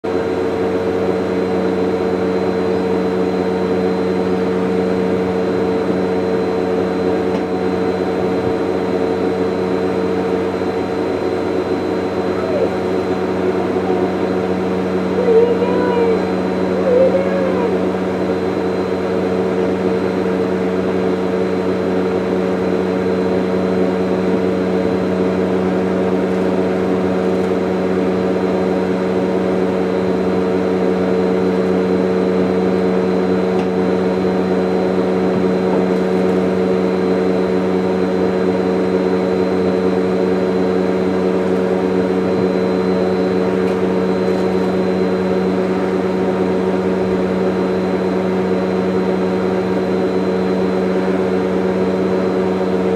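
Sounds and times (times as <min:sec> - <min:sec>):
vacuum cleaner running: 0:00.1 - 0:52.9.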